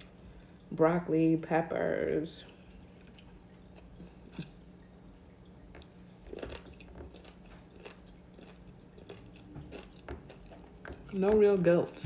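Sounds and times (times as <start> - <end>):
person chewing vegetables: 2.4 - 12.0.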